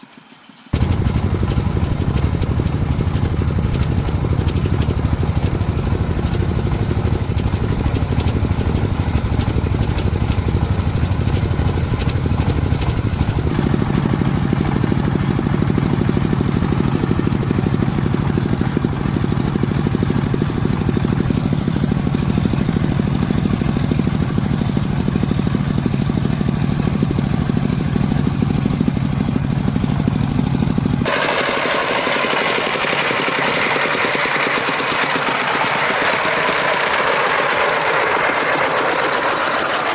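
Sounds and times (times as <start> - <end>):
high mechanical running: 0.7 - 39.9
truck engine running: 0.7 - 39.9.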